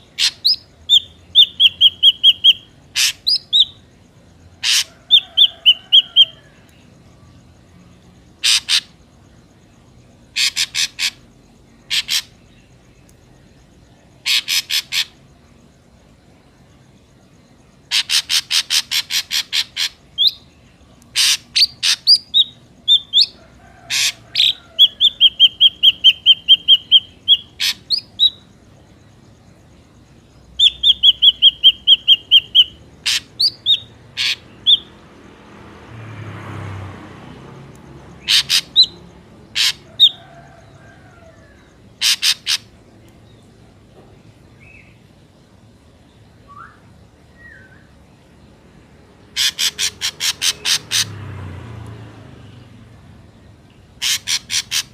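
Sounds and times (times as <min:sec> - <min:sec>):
bird calling sharp repeated notes: 0:00.0 - 0:03.9, 0:04.6 - 0:06.4, 0:08.4 - 0:09.0, 0:10.3 - 0:12.5, 0:14.2 - 0:15.2, 0:17.9 - 0:28.5, 0:30.6 - 0:35.0, 0:38.2 - 0:40.3, 0:41.9 - 0:43.1, 0:49.3 - 0:51.2, 0:54.0 - 0:54.9.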